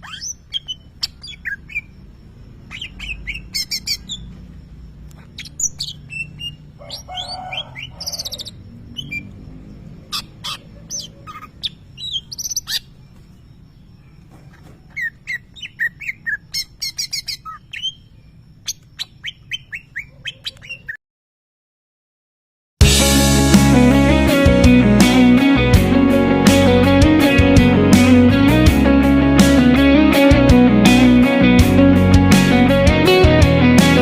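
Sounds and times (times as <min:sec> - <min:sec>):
bird singing sharp chirps: 0:00.0 - 0:02.0, 0:02.6 - 0:04.4, 0:05.2 - 0:21.0.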